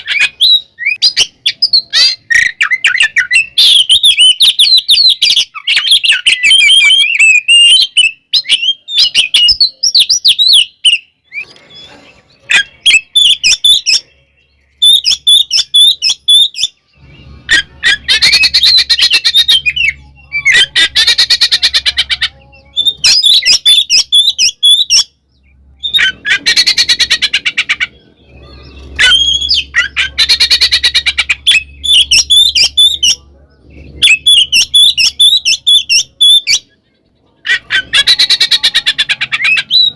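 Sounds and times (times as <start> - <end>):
bird singing whistled phrases: 0.0 - 11.9, 14.8 - 21.6, 22.4 - 25.1, 28.4 - 33.2
fast rattling bird chatter: 17.4 - 24.5, 25.9 - 36.1.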